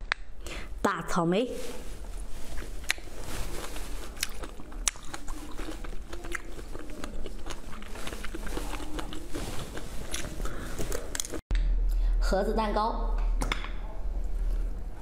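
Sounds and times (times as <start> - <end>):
wet chewing mouth sounds: 2.5 - 11.4.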